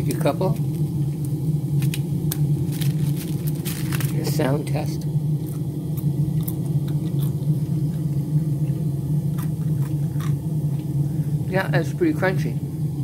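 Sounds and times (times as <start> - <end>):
steady low hum: 0.0 - 13.0
french fry crunching: 1.8 - 4.3, 5.5 - 7.5, 9.3 - 10.8.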